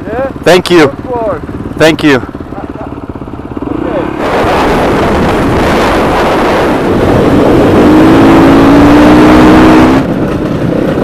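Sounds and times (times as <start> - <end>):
motorcycle engine running: 0.0 - 11.0
wind rush on microphone: 3.0 - 11.0.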